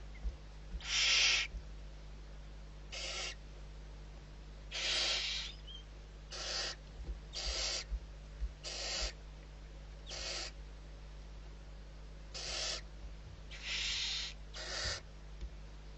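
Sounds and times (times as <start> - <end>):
barn owl screeching: 0.8 - 1.5, 2.9 - 3.4, 4.7 - 7.9, 8.6 - 9.2, 10.0 - 10.6, 12.3 - 12.9, 13.5 - 15.0.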